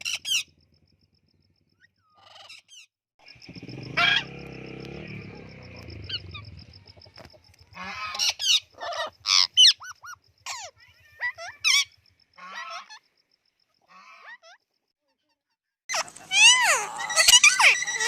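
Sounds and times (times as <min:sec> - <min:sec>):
bird calling harshly: 0:00.0 - 0:00.5, 0:02.0 - 0:13.1, 0:15.9 - 0:18.0.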